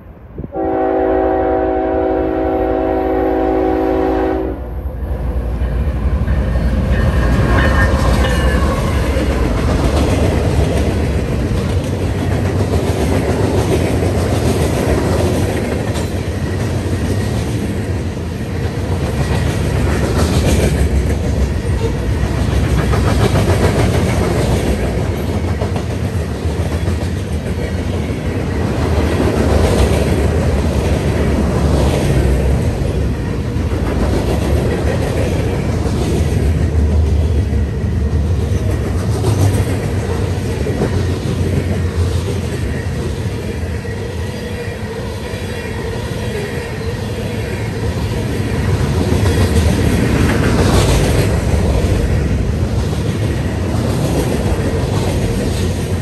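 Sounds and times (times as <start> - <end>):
train wheels rumbling: 0.0 - 56.0
train horn chord: 0.5 - 4.9.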